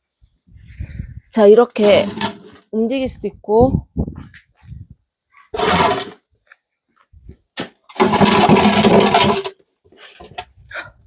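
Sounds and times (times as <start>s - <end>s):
metal pit scraping on ground: 1.6s - 2.7s, 5.5s - 6.2s, 7.6s - 10.5s.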